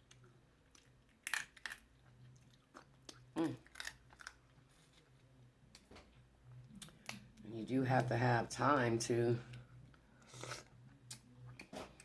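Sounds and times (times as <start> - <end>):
wet chewing: 0.0 - 5.8.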